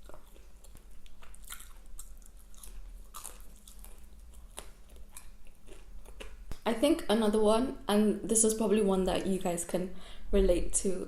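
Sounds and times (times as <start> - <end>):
chewing and crunching food: 0.0 - 6.7.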